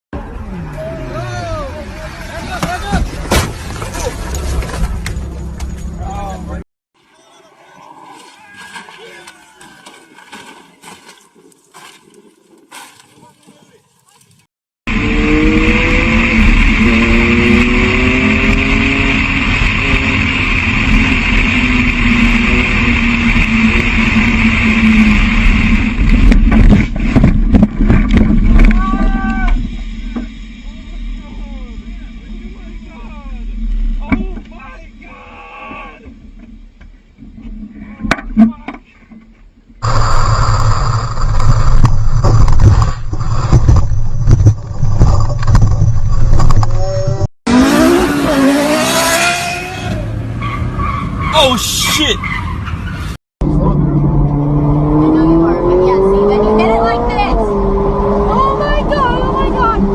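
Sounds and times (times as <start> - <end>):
wind and road noise: 0.2 - 6.6, 7.5 - 59.9
car engine note rising: 14.9 - 26.4
car driving at speed: 14.9 - 34.5, 39.8 - 51.4, 52.2 - 59.9.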